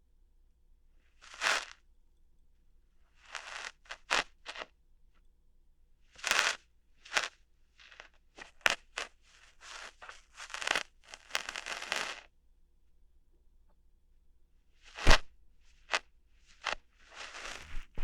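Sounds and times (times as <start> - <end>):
crackling rustles: 8.4 - 12.3, 16.5 - 18.0
crunchy snaps at an ear: 15.0 - 15.3.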